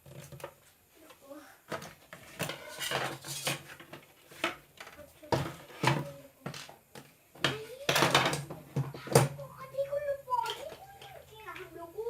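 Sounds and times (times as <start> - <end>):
knocks and clatter of appliance parts: 1.7 - 9.4.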